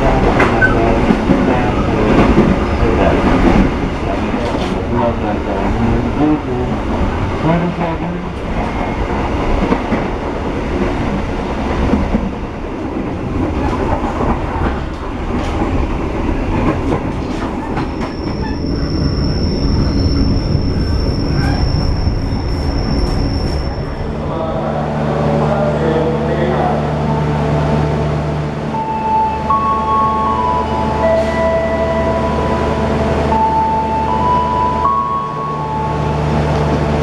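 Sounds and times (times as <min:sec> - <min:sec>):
train rumbling on track: 0:00.0 - 0:37.0
high-pitched wheel squeal: 0:17.6 - 0:23.9.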